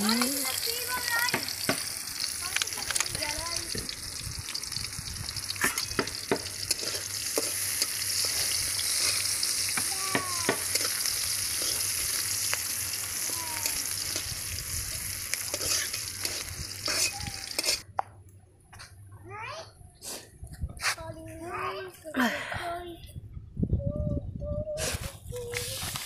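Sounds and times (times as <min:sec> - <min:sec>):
onions sizzling in hot oil: 0:00.0 - 0:17.8
spatula scraping a pan: 0:06.6 - 0:09.4, 0:10.5 - 0:12.0, 0:15.5 - 0:17.8.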